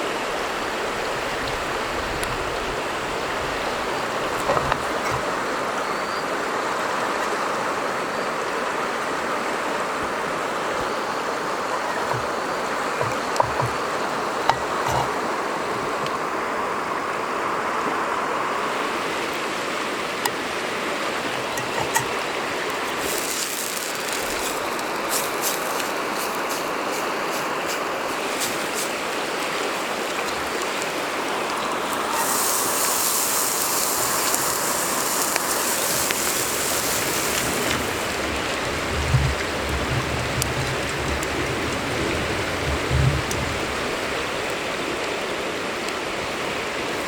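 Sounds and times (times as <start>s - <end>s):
loud high hiss: 21.1s - 38.8s
sharp crackles: 21.3s - 44.2s.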